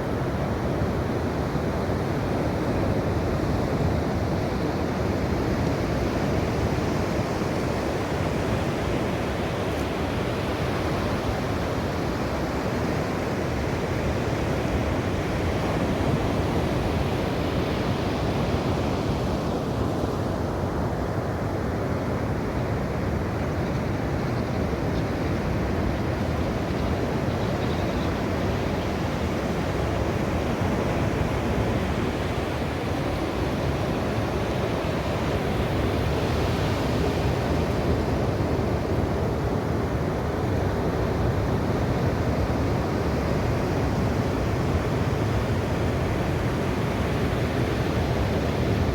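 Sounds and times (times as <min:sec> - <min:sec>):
ocean waves washing on shore: 0:25.4 - 0:48.9.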